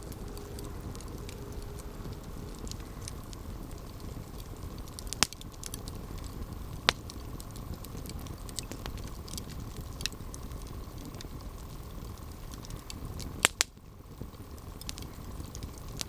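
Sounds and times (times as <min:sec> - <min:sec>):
campfire crackling: 0:00.0 - 0:16.0
loud sharp pops: 0:04.9 - 0:07.3, 0:13.4 - 0:13.8.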